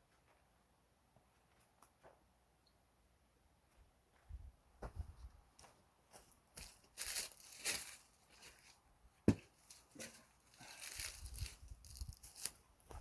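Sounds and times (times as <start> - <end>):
rustling crinkling handling noise: 6.6 - 8.8, 9.5 - 12.6.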